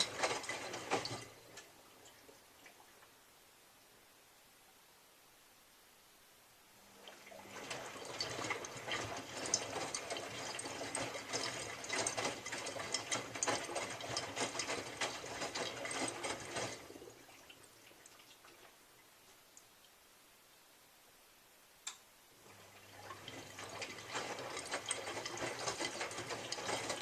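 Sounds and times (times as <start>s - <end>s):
washing machine drum turning: 0.0s - 1.7s, 22.9s - 27.0s.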